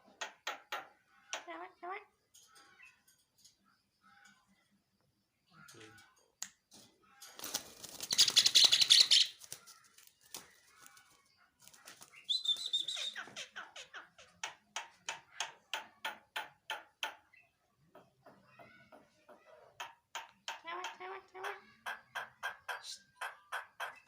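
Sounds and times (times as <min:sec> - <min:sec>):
bird wings flapping: 0:07.3 - 0:12.9.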